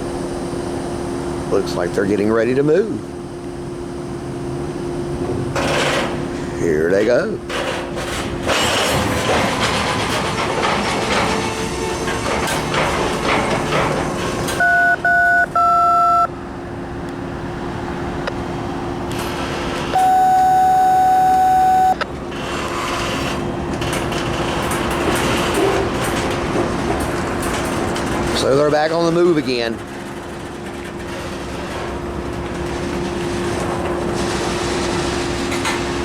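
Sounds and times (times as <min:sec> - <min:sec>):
freight train rumbling: 0:00.0 - 0:14.7, 0:22.1 - 0:36.0
electronic beeps: 0:14.6 - 0:16.3, 0:20.0 - 0:22.0.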